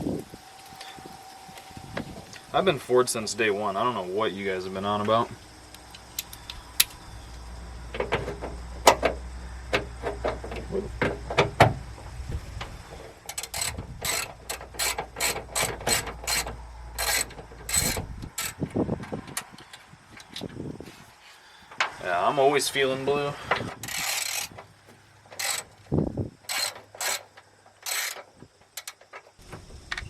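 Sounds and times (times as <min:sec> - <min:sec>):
socket ratchet clicking: 0:13.3 - 0:18.7, 0:23.8 - 0:24.6, 0:25.4 - 0:25.8, 0:26.5 - 0:29.0.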